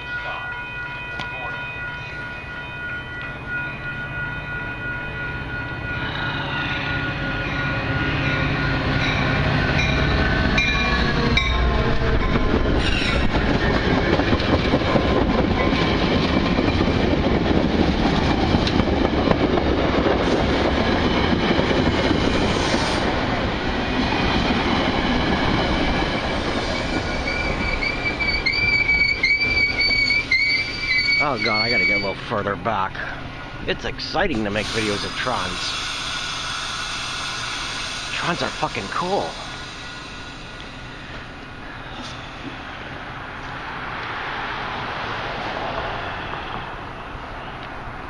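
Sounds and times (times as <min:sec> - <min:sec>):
high tones: 0:00.0 - 0:13.3, 0:27.2 - 0:36.4
train wheels rumbling on rails: 0:01.1 - 0:48.0
wheel brake squeal: 0:26.8 - 0:32.2.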